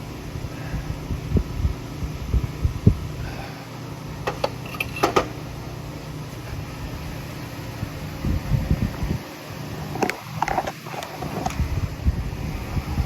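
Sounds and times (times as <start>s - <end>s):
steady low hum: 0.0s - 13.0s
metallic clinks of engine parts: 4.3s - 5.3s.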